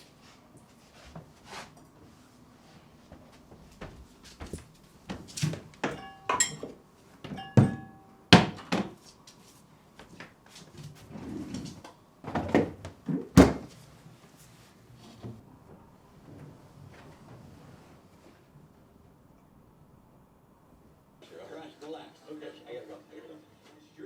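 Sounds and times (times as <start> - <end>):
dishes clattering: 5.8 - 8.6.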